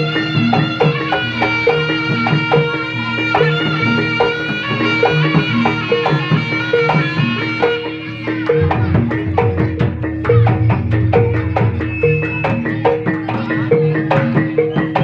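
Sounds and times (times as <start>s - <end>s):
quick struck percussion notes: 0.0s - 15.0s
reedy wind melody: 7.3s - 13.8s
drum pattern: 8.3s - 15.0s.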